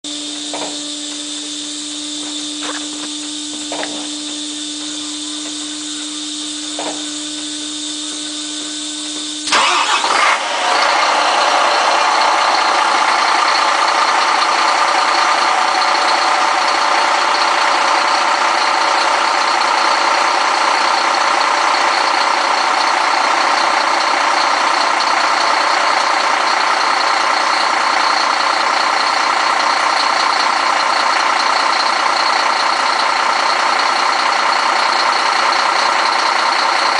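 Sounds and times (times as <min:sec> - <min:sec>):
diesel truck engine starting: 0:00.0 - 0:36.9
steady hum: 0:00.1 - 0:26.8.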